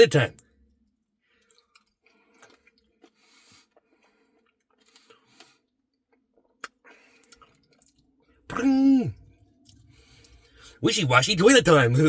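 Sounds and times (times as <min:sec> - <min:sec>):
close-up chewing: 0:01.4 - 0:08.1.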